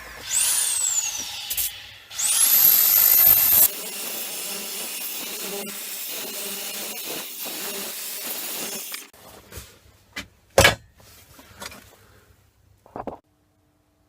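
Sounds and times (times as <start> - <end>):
electric belt sander running: 2.2 - 9.1.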